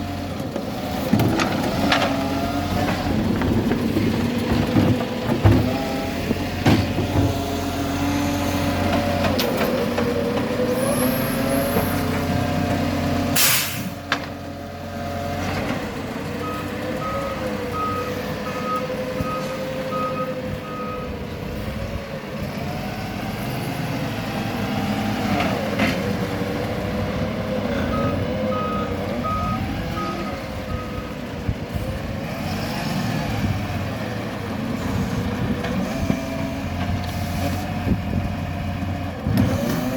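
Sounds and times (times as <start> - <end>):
air brake hiss: 13.4 - 14.0
reversing beeper: 27.8 - 31.1.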